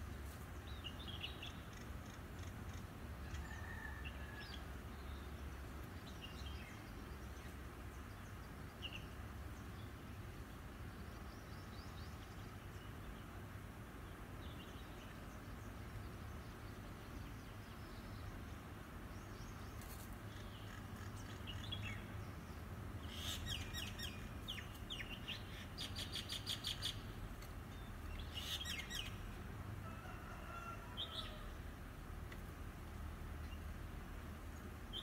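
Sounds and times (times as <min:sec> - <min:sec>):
birds chirping and calling: 0:27.8 - 0:29.3.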